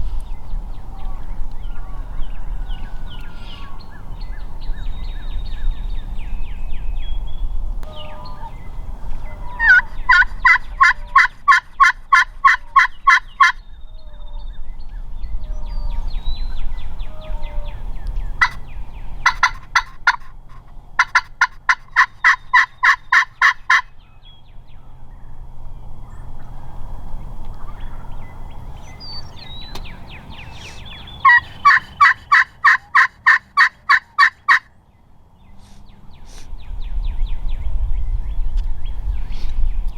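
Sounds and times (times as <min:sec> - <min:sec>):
turkey yelping: 0:09.3 - 0:13.6, 0:18.4 - 0:18.6, 0:19.2 - 0:23.9, 0:30.5 - 0:34.7
low rumble: 0:35.2 - 0:39.9.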